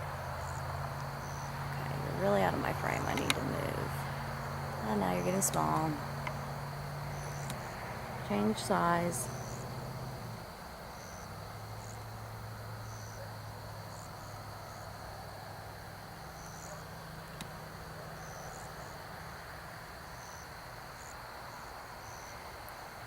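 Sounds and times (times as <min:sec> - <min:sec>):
low hum: 0:00.0 - 0:12.4
insect trill and chirps: 0:00.0 - 0:23.0.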